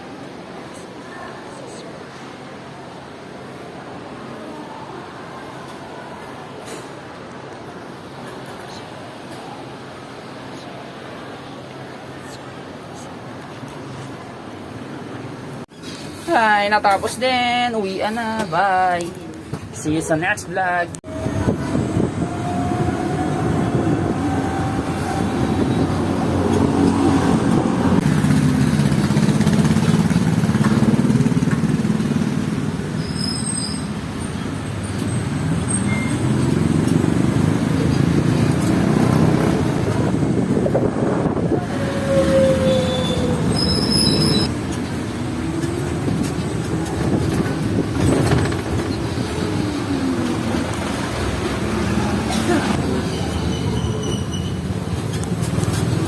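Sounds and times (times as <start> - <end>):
road noise: 0.0 - 56.0
vehicle engine revving: 36.2 - 41.1
high-pitched squeaks: 41.9 - 44.5, 52.9 - 54.8.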